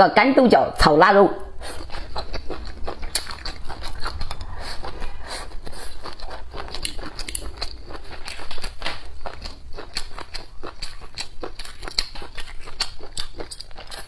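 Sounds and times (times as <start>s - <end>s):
close-miked chewing: 1.4s - 14.0s.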